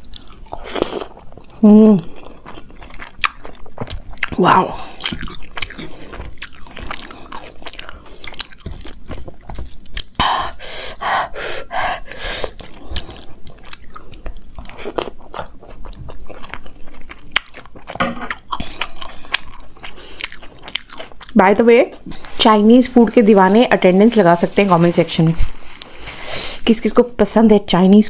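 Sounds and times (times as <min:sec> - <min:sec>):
chewing rice: 0:00.0 - 0:11.1, 0:11.7 - 0:21.4.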